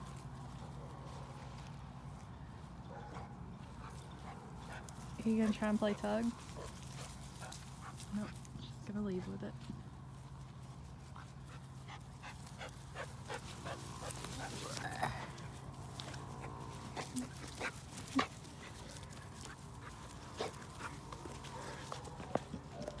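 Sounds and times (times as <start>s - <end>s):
paws clicking and tapping: 2.9s - 8.6s, 10.4s - 23.0s.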